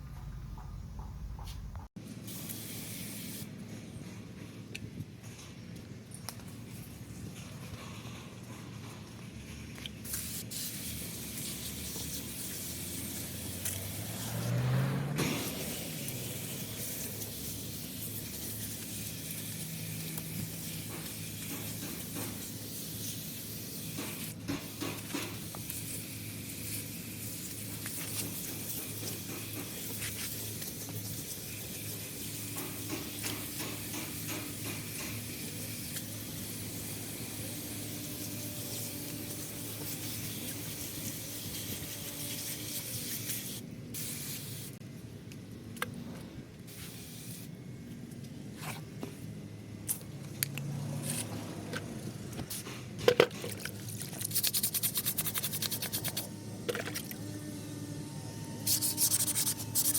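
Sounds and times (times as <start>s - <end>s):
spray paint can hissing: 2.2s - 3.5s, 10.0s - 44.8s, 46.7s - 47.5s, 54.2s - 56.3s, 58.6s - 59.9s.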